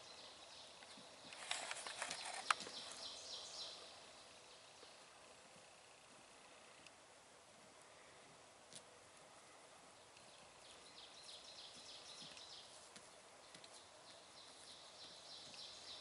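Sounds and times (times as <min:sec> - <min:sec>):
small clicks: 0:00.8 - 0:02.7.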